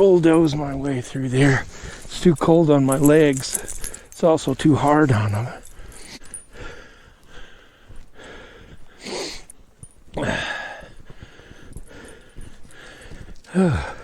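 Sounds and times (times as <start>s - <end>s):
footsteps crunching in snow: 0.0s - 14.0s
person breathing hard: 1.5s - 2.2s, 3.4s - 4.2s, 5.3s - 9.6s, 10.2s - 14.0s.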